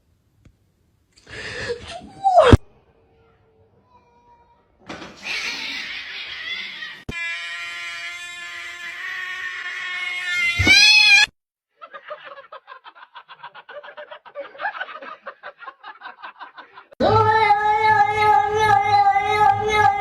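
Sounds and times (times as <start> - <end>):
cat yowling: 5.2 - 11.3
high-pitched animal call: 5.2 - 11.3.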